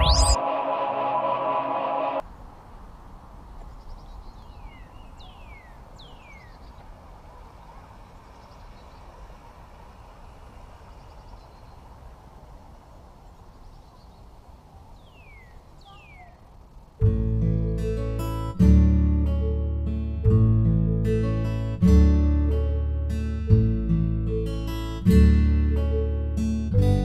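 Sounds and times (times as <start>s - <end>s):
bird whistling downward: 0.0s - 0.4s
outdoor background noise: 0.0s - 27.0s.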